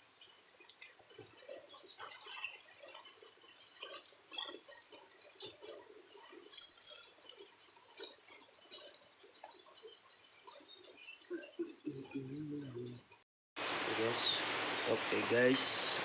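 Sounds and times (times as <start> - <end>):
small birds chirping: 0.0 - 13.2
small metal parts clinking: 3.8 - 9.4.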